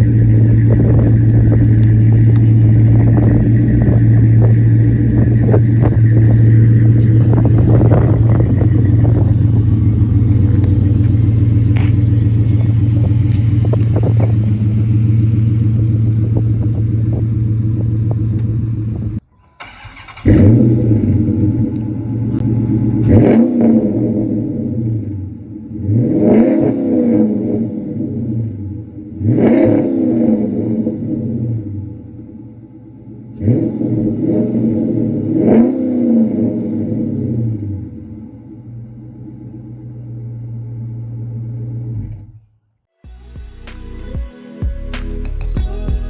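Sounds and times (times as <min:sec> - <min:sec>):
car engine idling loudly: 0:00.0 - 0:19.2, 0:20.0 - 0:23.2
engine revving: 0:00.0 - 0:32.1, 0:33.2 - 0:39.1.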